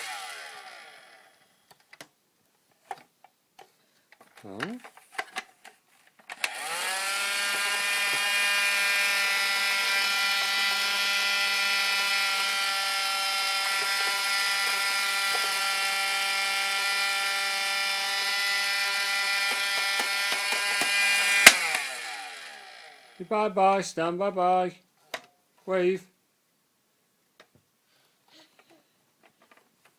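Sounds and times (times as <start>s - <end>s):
vacuum cleaner motor humming: 0.0s - 1.3s, 6.4s - 23.2s.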